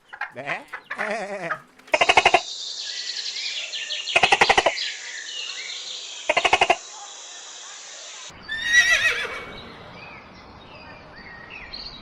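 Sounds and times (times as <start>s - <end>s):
rapid rattling animal calls: 0.0s - 2.5s, 8.4s - 10.0s
birdsong: 0.0s - 7.0s, 8.3s - 12.0s.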